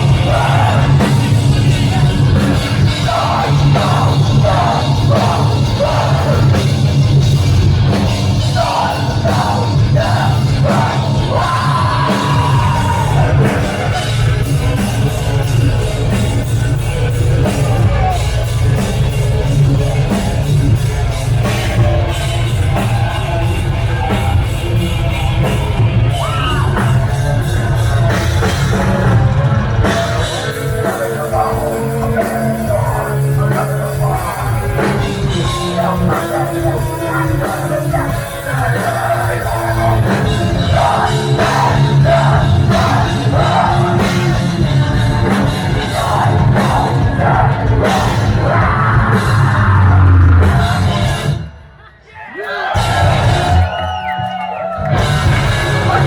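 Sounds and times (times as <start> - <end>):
heavy metal band playing: 0.0 - 51.7, 52.4 - 56.0
screamed vocals: 8.4 - 13.9, 26.0 - 27.5, 45.7 - 51.2, 51.8 - 56.0.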